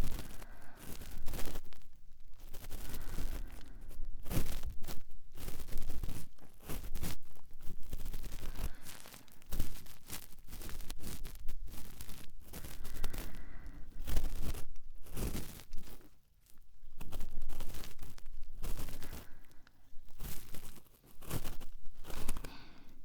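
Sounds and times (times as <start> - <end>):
cotton swab scratching microphone: 0.0 - 23.0.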